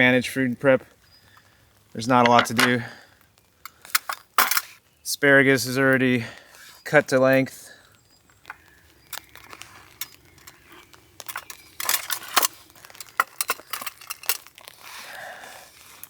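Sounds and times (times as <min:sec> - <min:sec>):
food packaging crinkling: 0:08.0 - 0:16.0.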